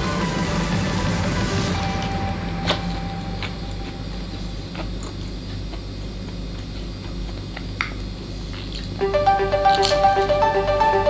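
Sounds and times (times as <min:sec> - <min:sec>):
low steady hum: 0:00.0 - 0:11.0
crunchy chewing: 0:04.3 - 0:09.0.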